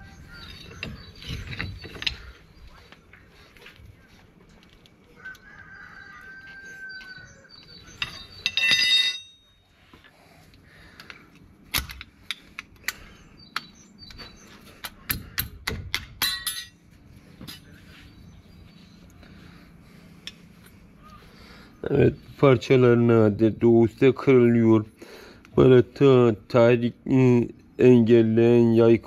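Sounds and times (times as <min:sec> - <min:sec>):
metal brake parts clinking: 0:07.9 - 0:09.6, 0:16.2 - 0:16.8.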